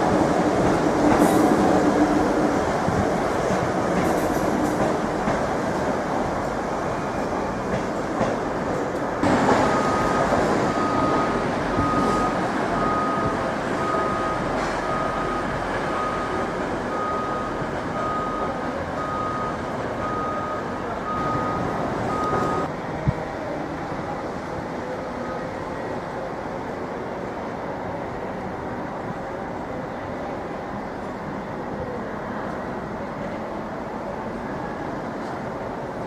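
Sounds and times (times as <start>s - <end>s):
train rumbling: 0.0s - 36.0s
high electronic warning beep: 9.6s - 22.7s.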